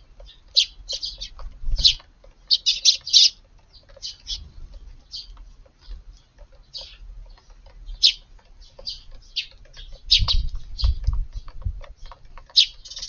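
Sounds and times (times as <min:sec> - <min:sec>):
small ticks: 0:00.0 - 0:13.0
sparrows chirping: 0:00.0 - 0:13.0
low rumbling thumps: 0:08.9 - 0:12.0.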